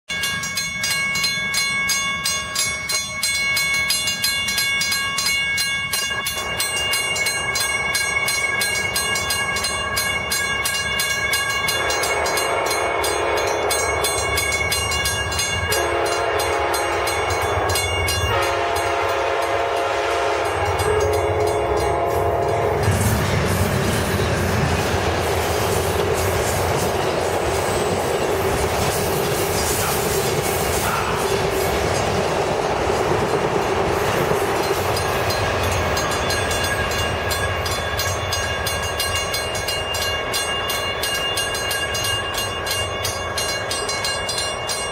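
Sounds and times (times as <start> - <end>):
bell ringing: 0.1 - 22.9, 34.5 - 44.9
train wheels rumbling on rails: 0.1 - 44.9
train horn blasts: 11.6 - 14.3, 15.6 - 23.0.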